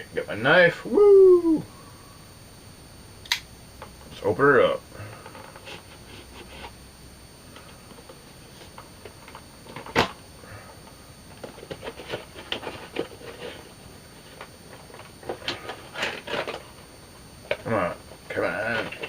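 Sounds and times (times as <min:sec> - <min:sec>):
sharp snap: 0:03.2 - 0:03.5.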